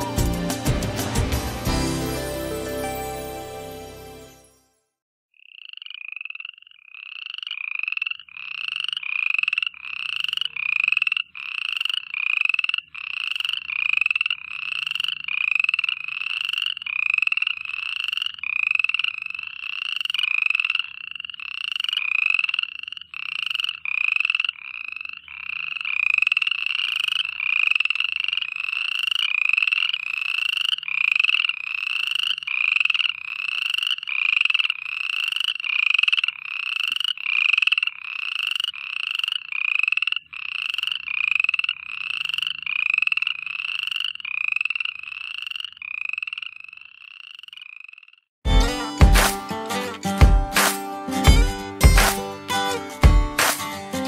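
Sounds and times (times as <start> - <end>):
frogs calling: 5.3 - 48.4.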